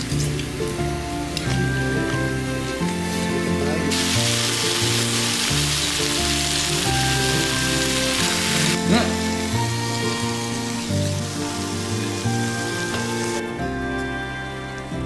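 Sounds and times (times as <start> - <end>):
background music: 0.0 - 15.0
meat sizzling in a griddle pan: 3.9 - 13.4.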